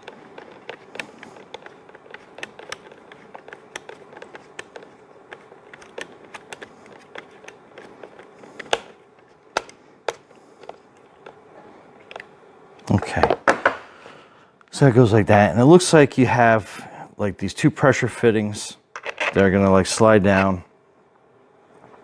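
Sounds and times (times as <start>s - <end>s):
plastic parts handled: 0.0s - 11.4s, 18.9s - 19.4s.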